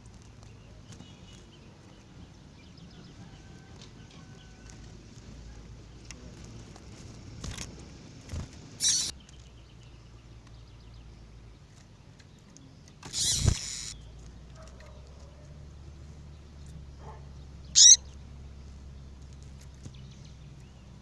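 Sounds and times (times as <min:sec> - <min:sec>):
harsh bird calls: 0:08.8 - 0:10.0, 0:12.6 - 0:15.7, 0:16.4 - 0:18.3.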